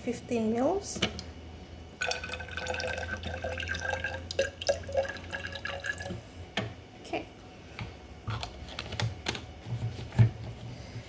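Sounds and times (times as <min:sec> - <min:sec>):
liquid trickling into glassware: 0:02.0 - 0:06.2.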